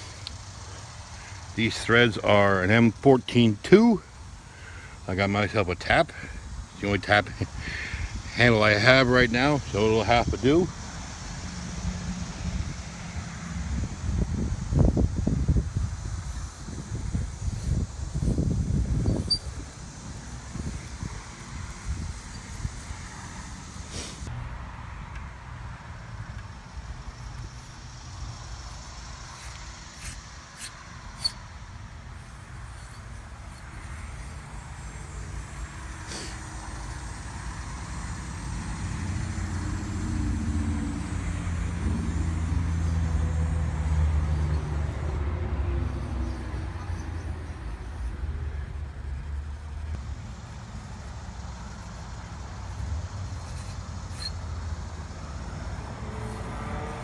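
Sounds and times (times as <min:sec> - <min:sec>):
vehicle passing: 0:36.7 - 0:50.0, 0:51.7 - 0:57.0.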